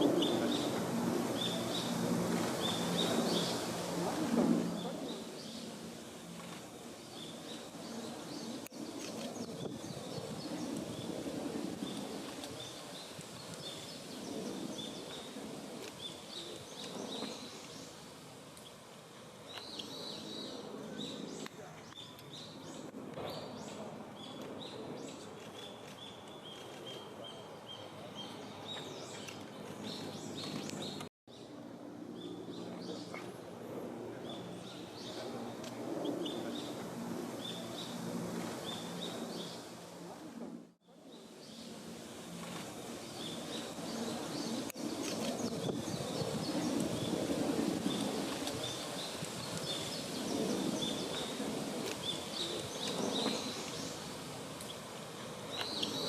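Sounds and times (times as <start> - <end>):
small birds chirping: 19.5 - 31.1, 41.0 - 56.0.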